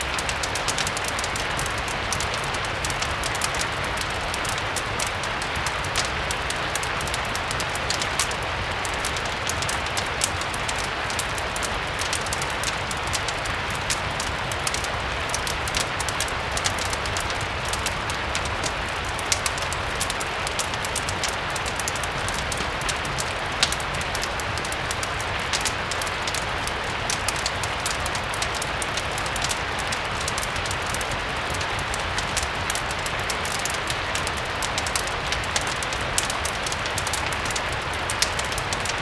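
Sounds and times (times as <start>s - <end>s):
steady rain: 0.0s - 39.0s
wood fire crackling: 0.0s - 39.0s.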